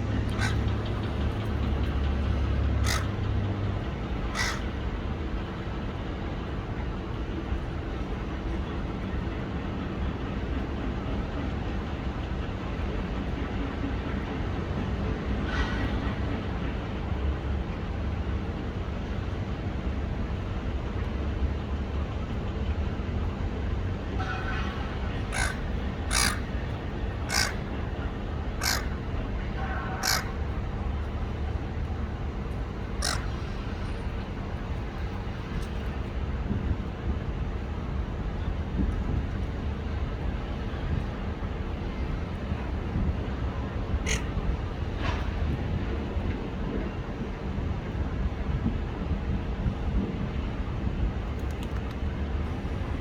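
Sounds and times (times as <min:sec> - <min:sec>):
parrot screeching: 0:00.4 - 0:00.6, 0:02.8 - 0:03.1, 0:04.4 - 0:04.6, 0:25.3 - 0:26.5, 0:27.3 - 0:27.6, 0:28.6 - 0:29.0, 0:30.0 - 0:30.4, 0:33.0 - 0:34.0.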